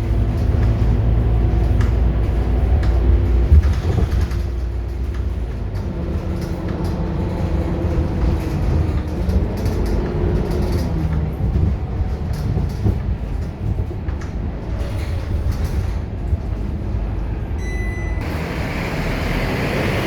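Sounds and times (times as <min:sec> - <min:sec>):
bus engine rumbling: 0:00.0 - 0:20.0.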